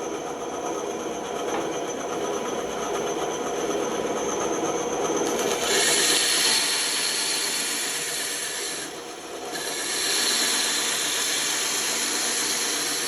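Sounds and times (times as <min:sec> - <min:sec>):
bandsaw cutting wood: 0:05.5 - 0:13.0.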